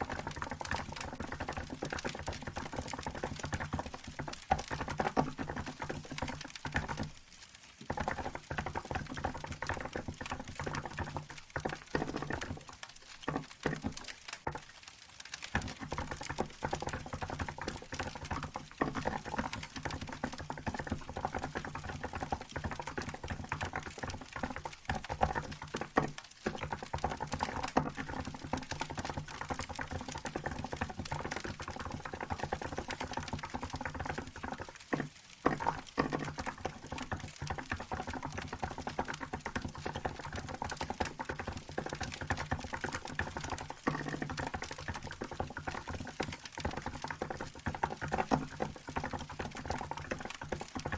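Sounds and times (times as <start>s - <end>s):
mechanical keyboard typing: 15.6s - 50.9s.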